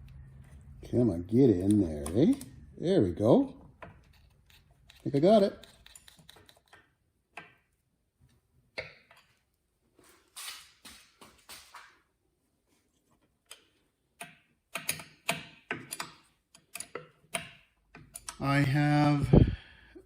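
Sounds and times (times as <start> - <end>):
clicks and taps of hand work: 13.2 - 18.4.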